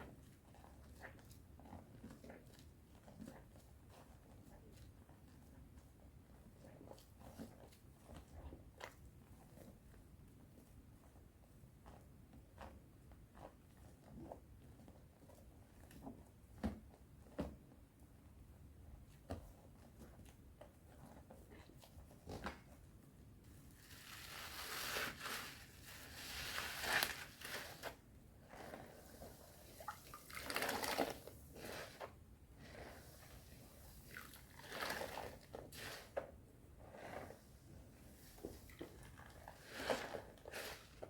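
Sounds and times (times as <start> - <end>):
soap lather squishing: 13.4 - 14.4, 23.8 - 37.4, 38.1 - 41.0.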